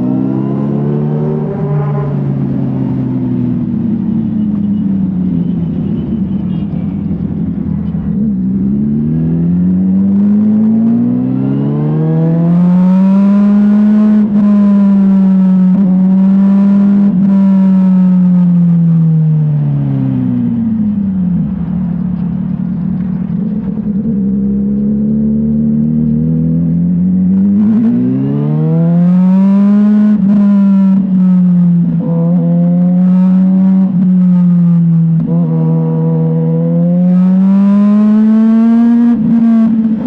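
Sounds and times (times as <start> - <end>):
motorcycle engine: 0.0 - 40.0.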